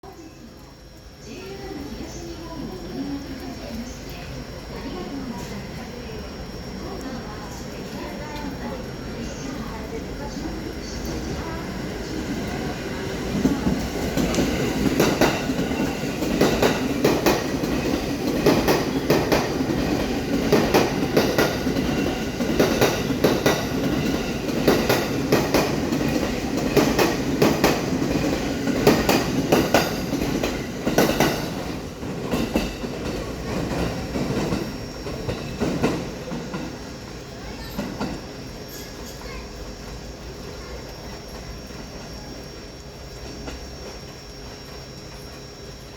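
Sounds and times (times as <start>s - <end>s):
train wheels clattering over joints: 13.3s - 36.8s.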